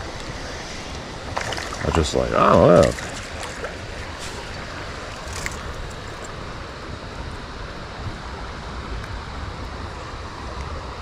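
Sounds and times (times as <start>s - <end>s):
creek water rushing: 0.0s - 11.0s
wind rumble on microphone: 0.0s - 11.0s.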